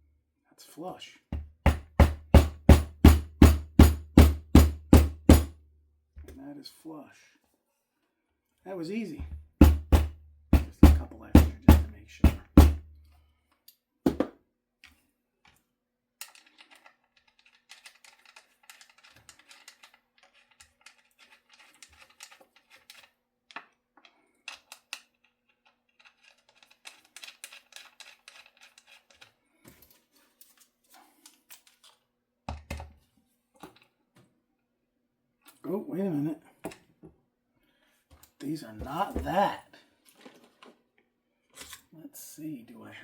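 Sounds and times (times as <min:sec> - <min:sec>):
dull thumps: 0:09.2 - 0:12.9.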